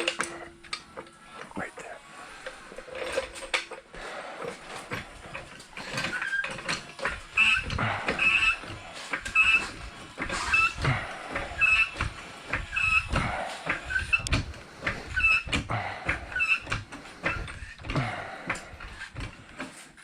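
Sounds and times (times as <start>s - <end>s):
car jack clunking: 2.8s - 20.0s
car jack squeaking: 4.7s - 20.0s.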